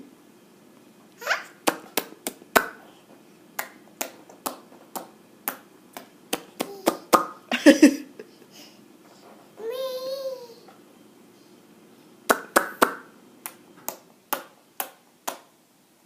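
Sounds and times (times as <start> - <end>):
child vocal sound: 9.6 - 10.7.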